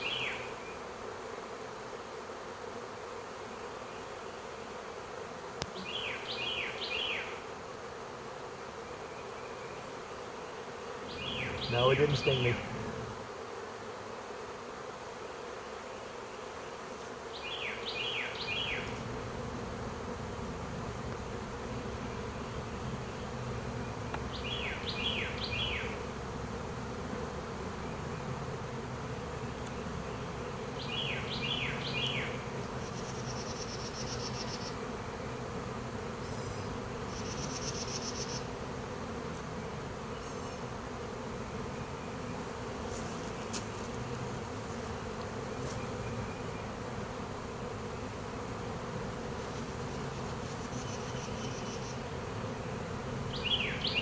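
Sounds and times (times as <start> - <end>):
bee swarm buzzing: 0.0 - 54.0.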